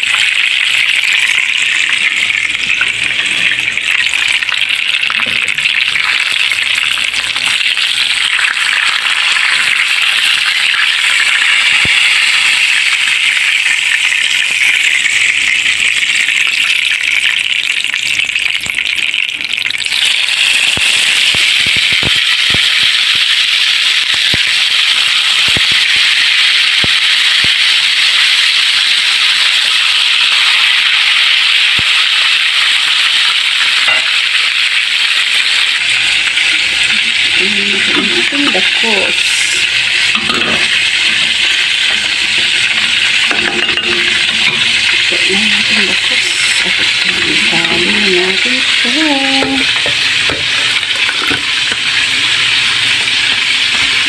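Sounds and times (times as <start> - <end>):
fish sizzling in hot oil: 0.0 - 54.0
oil pops and crackles: 16.4 - 23.4, 24.0 - 28.0, 31.7 - 32.2.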